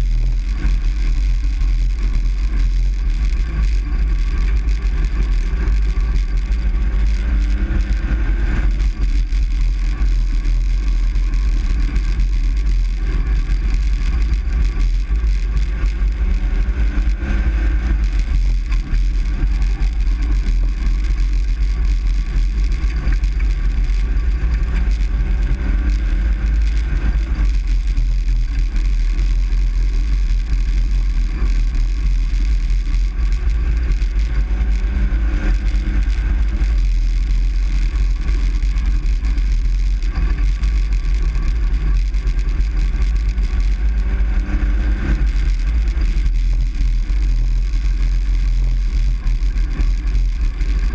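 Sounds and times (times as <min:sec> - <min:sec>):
truck engine and road noise: 0:00.0 - 0:50.9.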